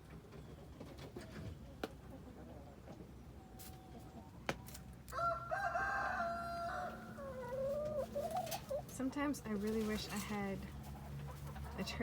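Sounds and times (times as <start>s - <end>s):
rooster crowing: 5.1s - 7.7s.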